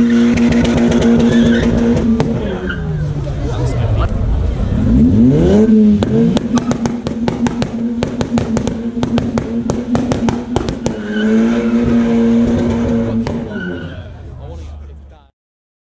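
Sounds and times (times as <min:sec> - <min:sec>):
sharp exhaust pops: 0:00.0 - 0:02.4, 0:05.9 - 0:13.5
car engine revving: 0:00.0 - 0:15.0.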